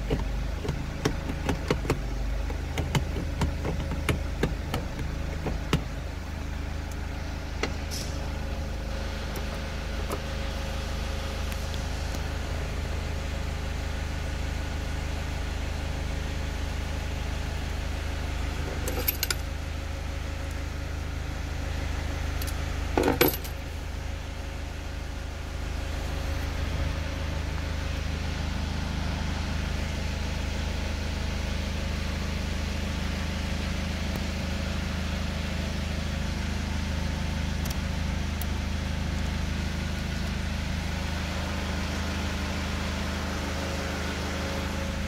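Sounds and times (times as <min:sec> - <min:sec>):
car key jingle: 0:00.0 - 0:06.0, 0:18.8 - 0:19.4, 0:22.4 - 0:23.6
car engine idling: 0:00.0 - 0:45.0.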